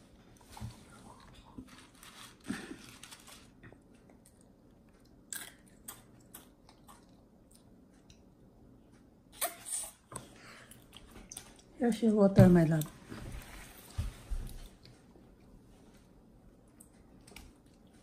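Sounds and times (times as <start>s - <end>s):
child crunching cereal: 1.4s - 3.6s.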